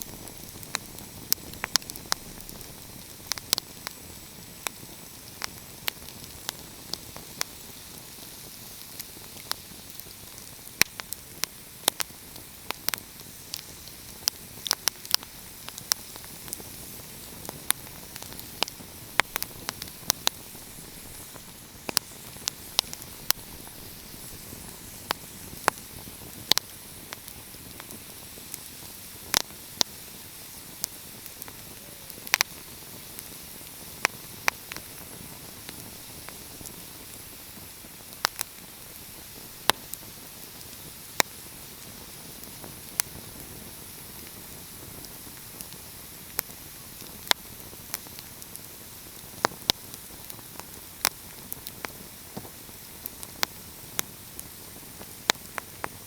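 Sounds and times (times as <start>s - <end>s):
soft hiss: 0.0s - 56.0s
wood fire crackling: 0.0s - 56.0s.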